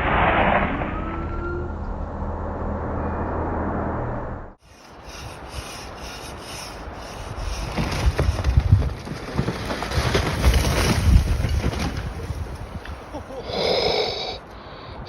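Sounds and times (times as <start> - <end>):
wind buffeting microphone: 4.7 - 13.3.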